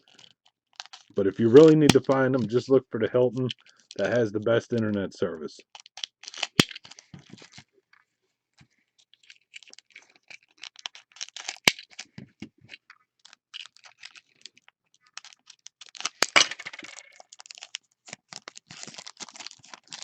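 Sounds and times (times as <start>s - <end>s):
cards and packaging handled: 0.0s - 20.0s.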